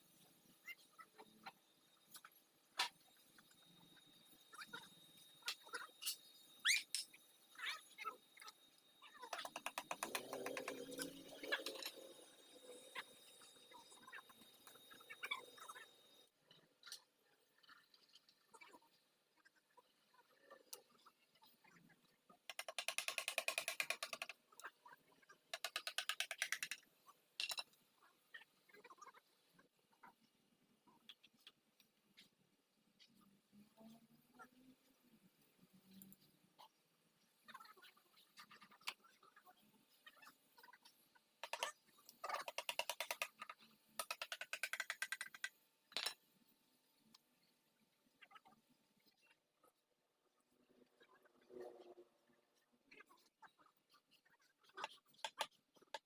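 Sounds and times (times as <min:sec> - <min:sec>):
socket ratchet clicking rapidly: 0:22.5 - 0:24.3, 0:25.5 - 0:26.8, 0:42.4 - 0:43.3, 0:44.0 - 0:45.5.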